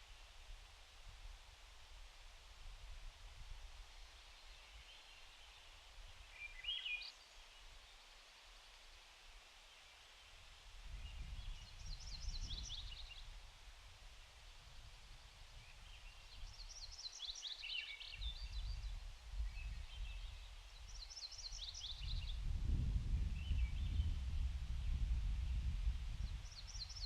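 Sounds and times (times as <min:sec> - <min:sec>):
songbird singing: 0:04.2 - 0:08.2, 0:10.9 - 0:13.3, 0:15.5 - 0:22.5, 0:23.1 - 0:27.0
wind on microphone: 0:10.8 - 0:13.5, 0:18.1 - 0:21.0, 0:21.6 - 0:27.0.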